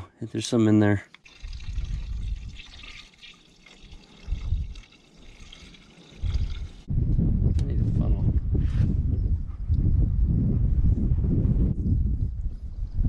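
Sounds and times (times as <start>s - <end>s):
coolant trickling and sloshing: 1.2s - 6.9s.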